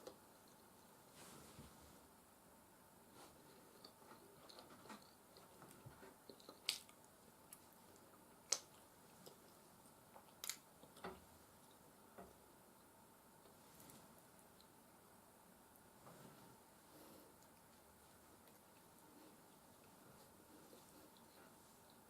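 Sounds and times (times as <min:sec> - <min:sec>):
person chewing wetly: 0:03.5 - 0:11.8, 0:17.3 - 0:22.0.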